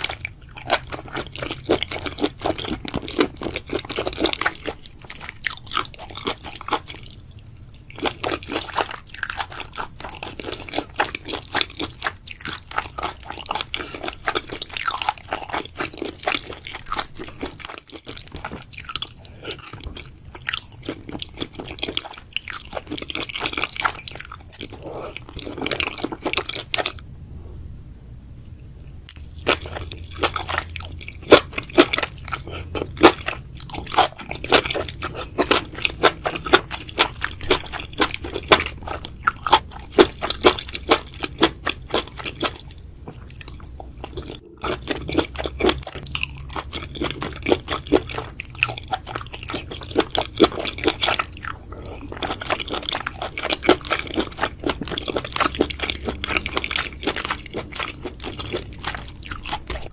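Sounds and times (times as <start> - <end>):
person chewing and crunching food: 0.0 - 27.1, 29.0 - 59.9
wet mouth sounds: 18.4 - 27.0.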